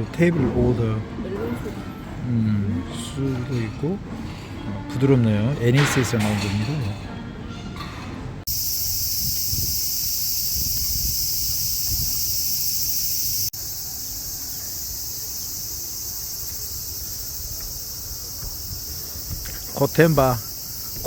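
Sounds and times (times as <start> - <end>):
insects chorus: 8.5 - 21.0.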